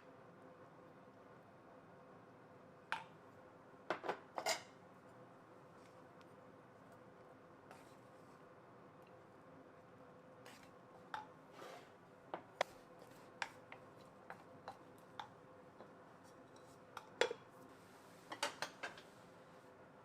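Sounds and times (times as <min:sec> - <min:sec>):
faint steady hum: 0:00.0 - 0:20.0
dishes and utensils clinking: 0:03.9 - 0:04.7, 0:18.3 - 0:19.1.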